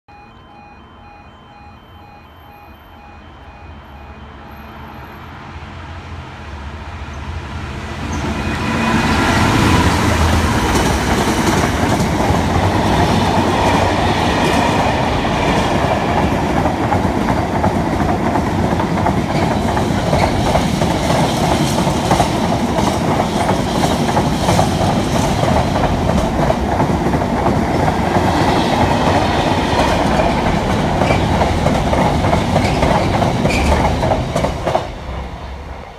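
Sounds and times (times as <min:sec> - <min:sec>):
pulsing level crossing warning tone: 0:00.1 - 0:05.4
diesel locomotive passing: 0:00.1 - 0:35.9
train wheels clattering on rails: 0:08.0 - 0:35.8.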